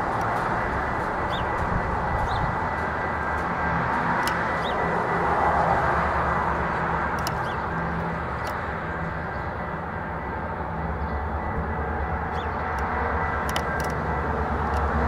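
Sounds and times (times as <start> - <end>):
diesel locomotive rumbling: 0.0 - 15.0.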